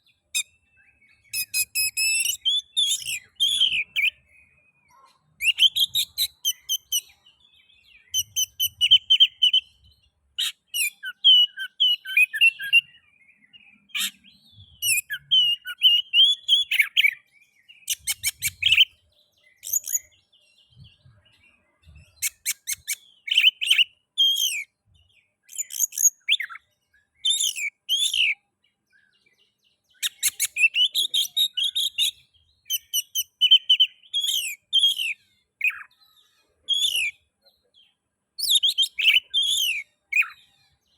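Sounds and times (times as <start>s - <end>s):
bird singing: 0.0s - 40.9s.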